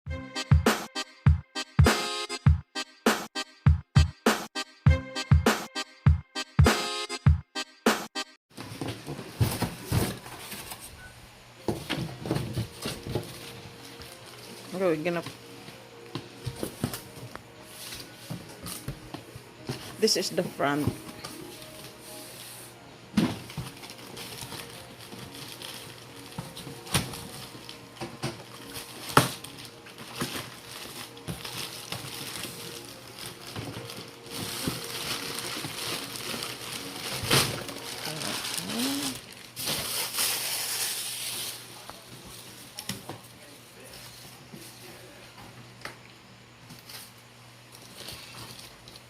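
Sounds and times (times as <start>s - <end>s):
packaging handling clicks and rustles: 23.3s - 41.6s.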